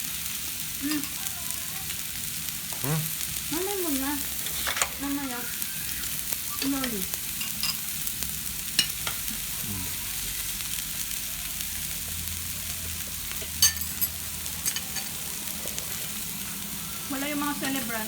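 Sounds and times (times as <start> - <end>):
cutlery and dishes clinking: 4.5 - 5.0, 6.6 - 7.9, 8.8 - 9.2, 13.3 - 16.0, 17.6 - 17.9.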